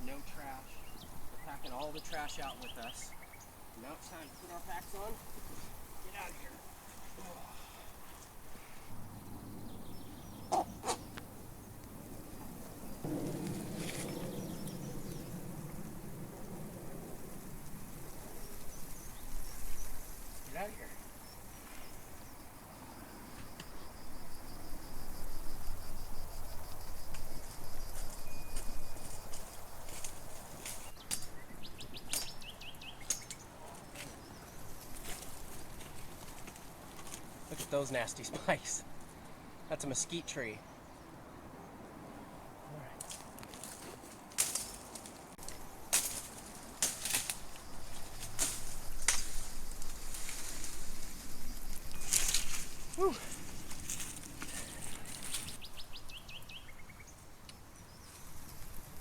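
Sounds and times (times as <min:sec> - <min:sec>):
rustle of movement: 0:00.0 - 0:31.4, 0:32.1 - 0:40.2, 0:41.4 - 0:56.6
insect chirping: 0:00.0 - 0:41.7, 0:44.5 - 0:59.0
rustling noise: 0:04.6 - 0:07.4, 0:08.0 - 0:09.1, 0:13.0 - 0:14.7, 0:43.0 - 0:55.6
footsteps crunching on gravel: 0:34.8 - 0:37.8, 0:43.0 - 0:48.3, 0:52.0 - 0:55.6.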